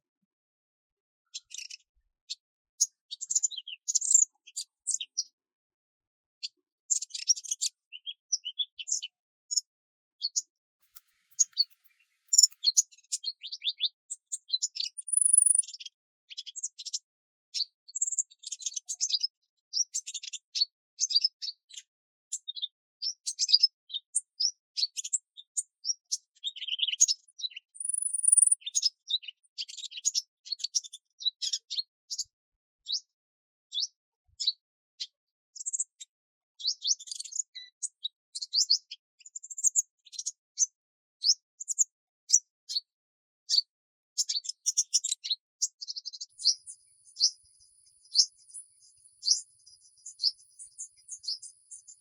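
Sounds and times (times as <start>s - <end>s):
songbirds chirping: 1.2s - 5.4s, 6.4s - 33.1s, 43.5s - 52.0s.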